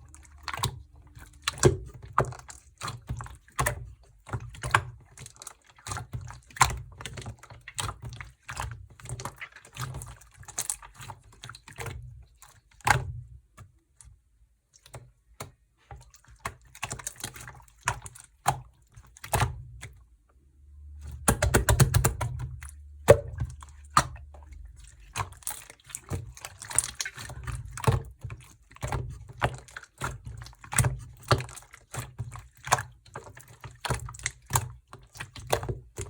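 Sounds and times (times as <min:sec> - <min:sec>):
slime squishing sticky clicks: 0:21.0 - 0:24.3.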